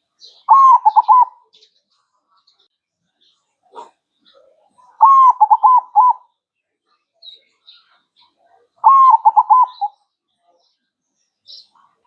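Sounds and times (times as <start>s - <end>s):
dove cooing: 0.4s - 1.4s, 5.0s - 6.2s, 8.8s - 10.0s.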